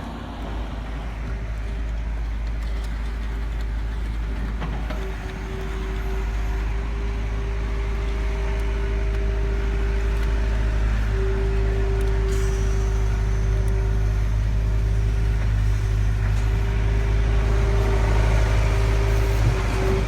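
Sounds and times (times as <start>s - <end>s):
small electric motors whining: 4.8s - 20.0s.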